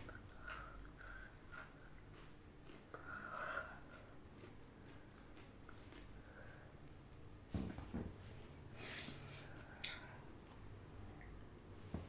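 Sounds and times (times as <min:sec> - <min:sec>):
chewing with crisp crunches: 0:00.0 - 0:06.6.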